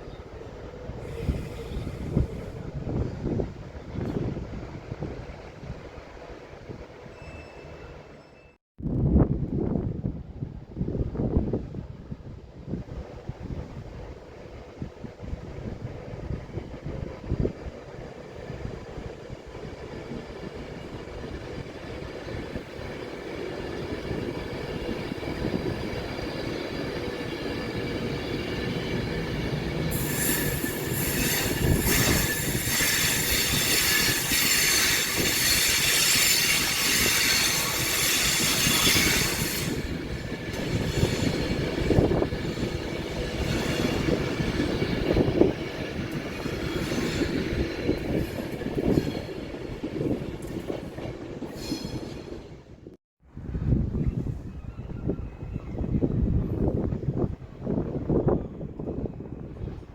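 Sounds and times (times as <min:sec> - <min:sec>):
train rumbling past: 0:00.0 - 0:08.6, 0:09.4 - 0:59.9
wheels squealing on rails: 0:00.9 - 0:03.1, 0:07.0 - 0:08.6, 0:21.9 - 0:52.6, 0:54.0 - 0:56.7.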